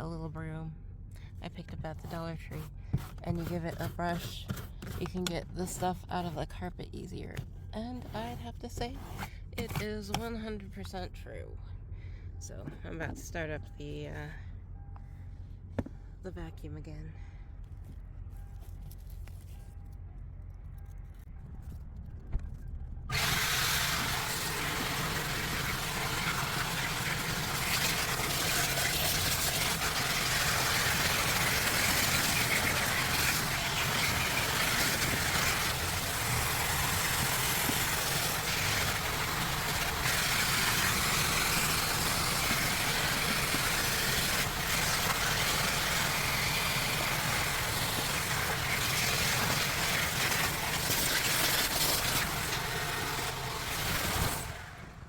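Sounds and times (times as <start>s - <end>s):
vacuum cleaner running: 23.1s - 55.0s.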